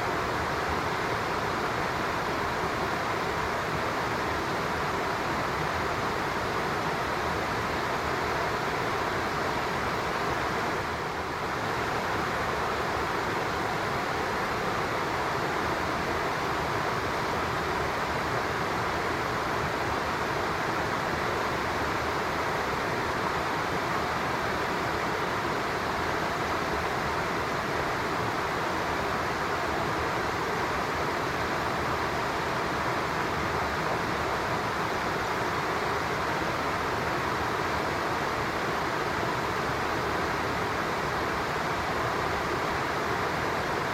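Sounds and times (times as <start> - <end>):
stream rushing: 0.0 - 43.9.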